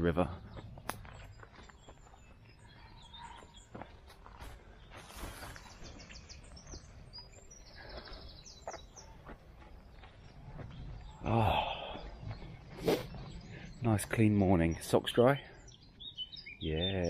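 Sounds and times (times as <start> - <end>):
birds singing: 0.0 - 17.0
footsteps through long grass: 3.7 - 8.0.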